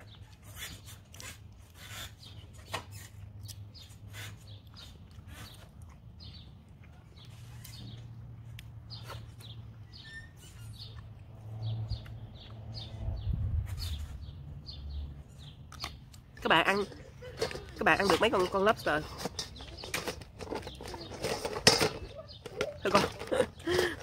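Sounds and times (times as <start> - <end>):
small bird chirping: 8.9 - 16.8.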